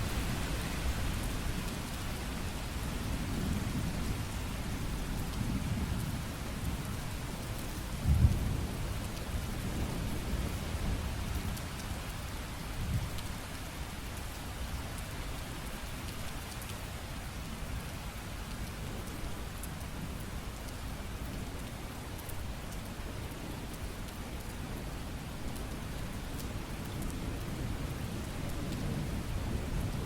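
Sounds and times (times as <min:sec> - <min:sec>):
rain on hard surfaces: 0:00.0 - 0:30.0
low thunder rumble: 0:08.0 - 0:11.1.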